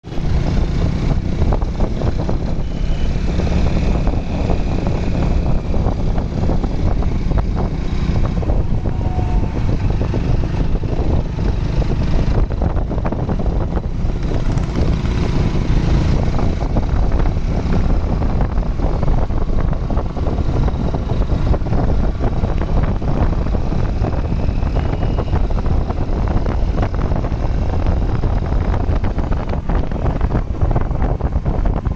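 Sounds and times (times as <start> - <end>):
motorcycle engine running: 0.0 - 31.9
wind buffeting microphone: 0.0 - 31.9.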